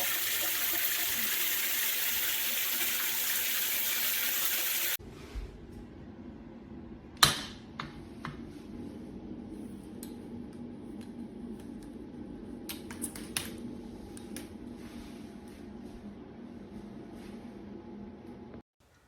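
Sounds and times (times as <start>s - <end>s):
steady low hum: 5.0s - 18.6s.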